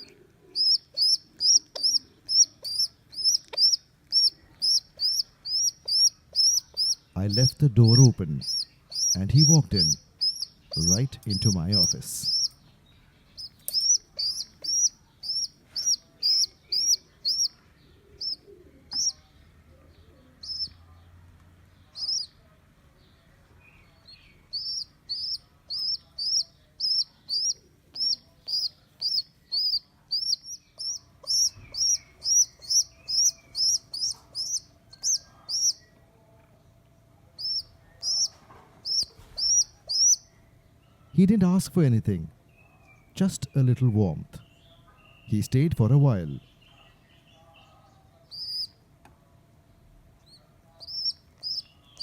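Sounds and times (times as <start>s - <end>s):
bird chirping: 0.0s - 48.9s, 49.7s - 52.0s.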